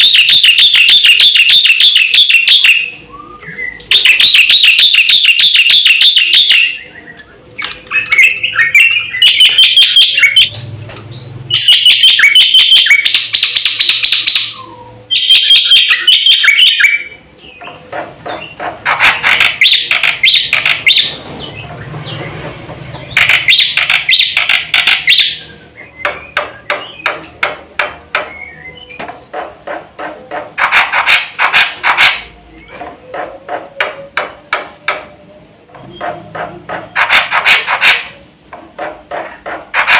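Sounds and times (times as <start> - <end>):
starling singing: 0.0 - 38.3
sharp clicks: 18.9 - 21.0, 23.1 - 25.3.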